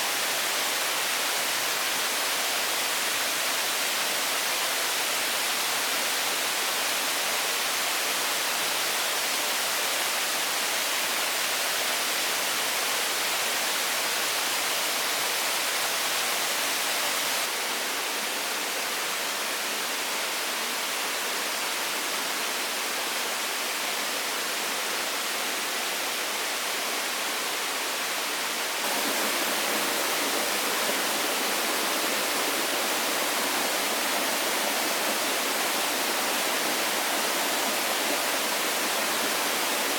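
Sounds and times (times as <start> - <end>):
steady rushing hiss: 28.7 - 39.9.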